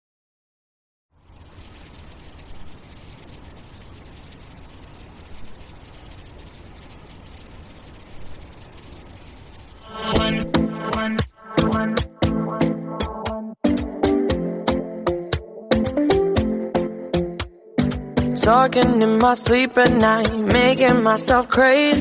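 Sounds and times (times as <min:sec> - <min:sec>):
cricket-like chirring: 0:01.2 - 0:12.1.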